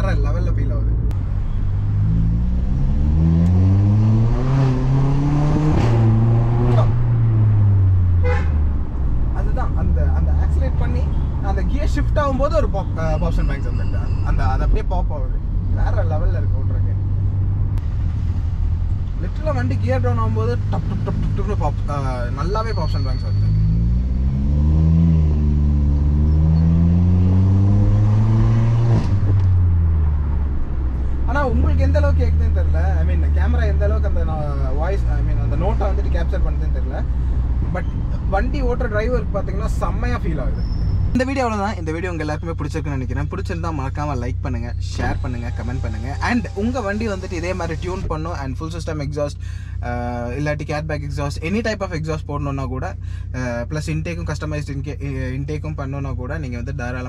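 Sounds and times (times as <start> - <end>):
turbo engine accelerating: 0.0 - 13.0, 14.7 - 41.2, 43.0 - 48.8.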